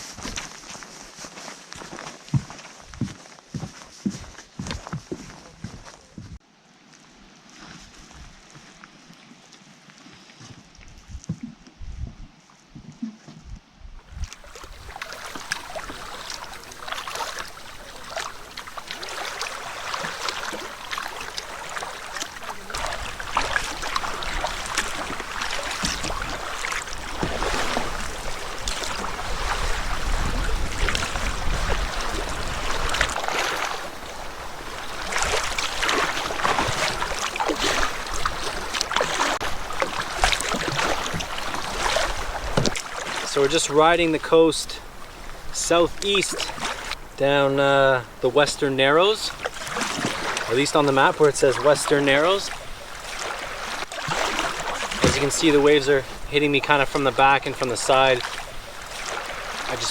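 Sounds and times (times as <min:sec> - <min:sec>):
waves slapping a canoe hull: 0:00.0 - 0:06.4, 0:07.8 - 0:59.9
wind rumble on microphone: 0:10.7 - 0:15.0, 0:25.8 - 0:35.7
paddle splashes: 0:14.1 - 0:59.9.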